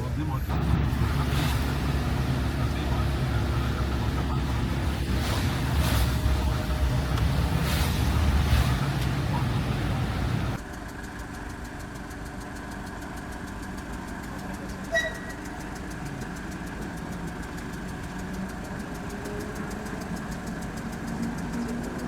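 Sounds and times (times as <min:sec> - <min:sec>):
engine idling hum: 0:00.0 - 0:22.0
short high beep: 0:14.9 - 0:15.6.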